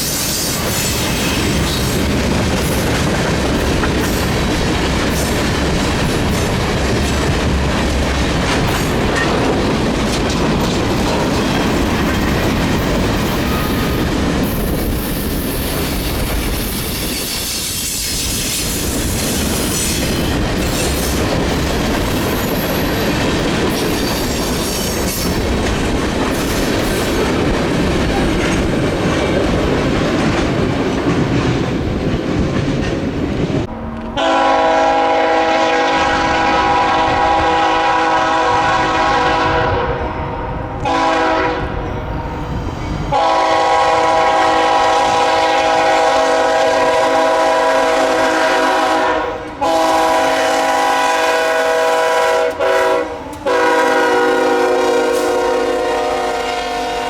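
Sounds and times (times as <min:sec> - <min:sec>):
train rumble and wheel clatter: 0:00.0 - 0:57.0
locomotive air horn blasts: 0:33.7 - 0:41.9, 0:43.1 - 0:57.0.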